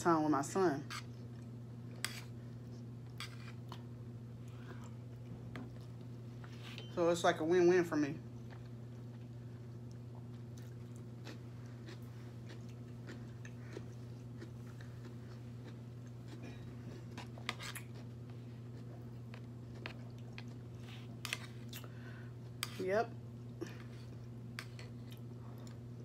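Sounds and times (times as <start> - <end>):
steady low hum: 0.0 - 26.0
person chewing food: 8.4 - 22.7, 23.3 - 26.0.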